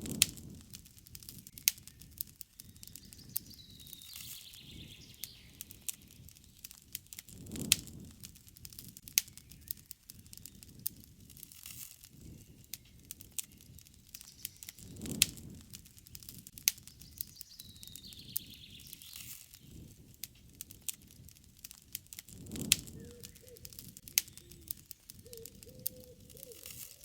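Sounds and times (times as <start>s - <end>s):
campfire crackling and popping: 0.0s - 27.0s
low rush of flame: 0.0s - 27.0s
bird calling: 2.7s - 6.1s, 22.8s - 27.0s.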